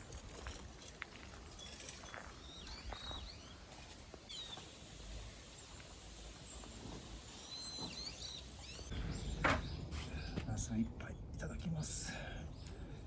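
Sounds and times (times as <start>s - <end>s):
wind: 0.0s - 13.0s
bird chirping: 7.4s - 10.4s.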